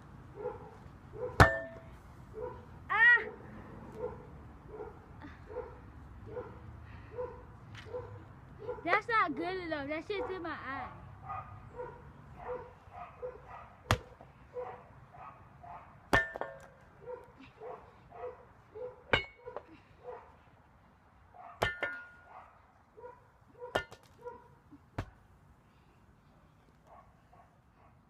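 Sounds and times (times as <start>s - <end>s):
dog barking: 0.4s - 1.4s, 2.4s - 2.6s, 4.0s - 8.9s, 11.2s - 13.8s, 14.5s - 15.9s, 17.0s - 20.3s, 21.4s - 21.6s, 22.3s - 24.5s.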